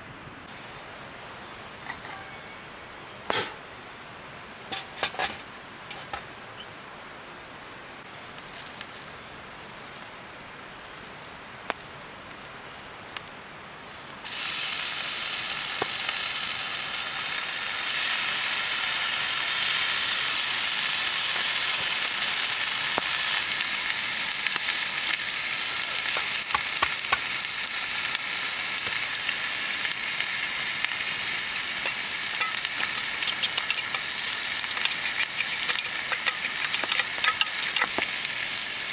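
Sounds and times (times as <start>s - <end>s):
food sizzling in a pan: 13.9s - 38.9s.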